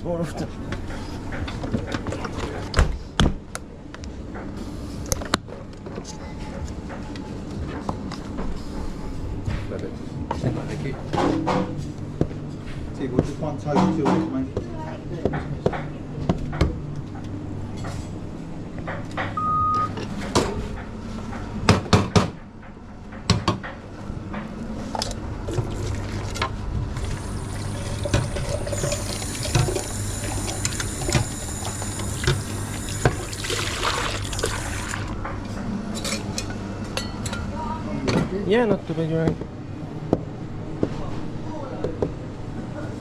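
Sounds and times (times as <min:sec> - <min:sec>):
steam wand hissing: 0:27.2 - 0:33.4.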